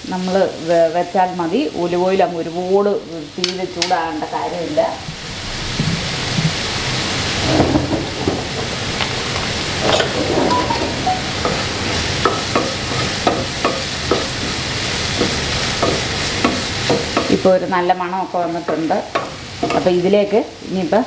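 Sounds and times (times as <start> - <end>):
food sizzling in oil: 8.6 - 21.0
wooden spatula stirring pan: 12.2 - 17.6.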